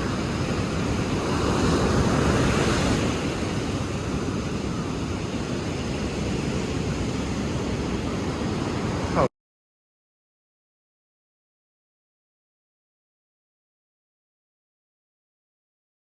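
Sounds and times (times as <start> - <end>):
ocean waves washing: 0.0 - 9.3.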